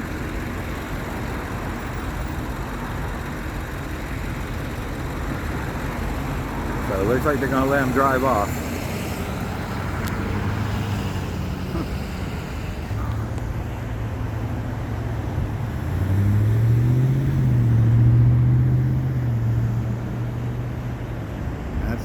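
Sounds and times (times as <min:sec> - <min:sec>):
vehicle engine running: 0:00.0 - 0:18.3
road traffic noise: 0:00.0 - 0:22.0.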